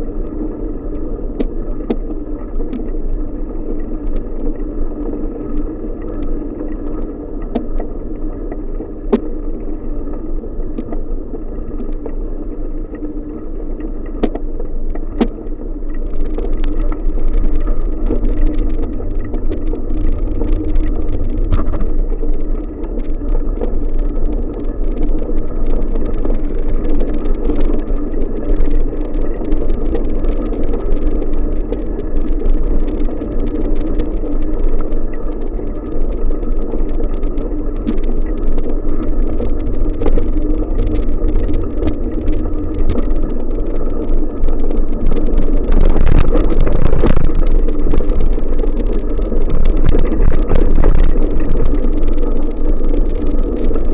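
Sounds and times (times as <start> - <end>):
bicycle rolling on road: 0.0 - 53.9
bike clicks and rattles: 14.2 - 53.9
wind on microphone: 14.2 - 53.9.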